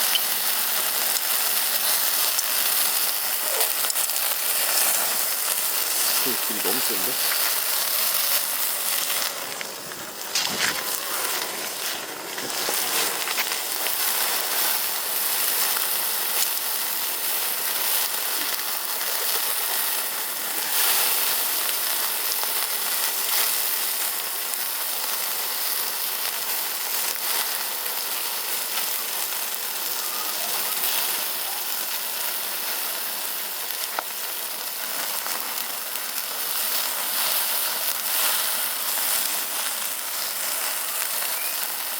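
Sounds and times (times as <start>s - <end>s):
faint fire pops: 0.0s - 23.2s, 33.2s - 41.9s
meat sizzling on a grill: 0.0s - 41.9s.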